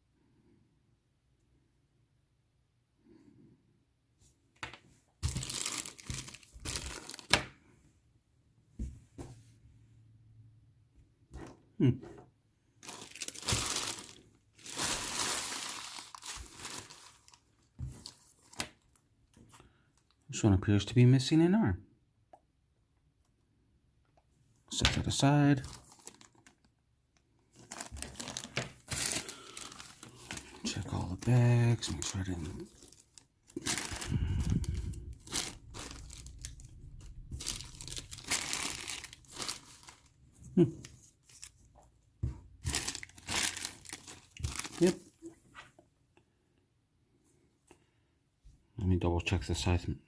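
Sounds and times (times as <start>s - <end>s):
plastic bags crinkling: 5.2s - 7.5s, 12.8s - 19.0s, 24.8s - 26.7s, 27.5s - 41.8s, 42.6s - 45.4s.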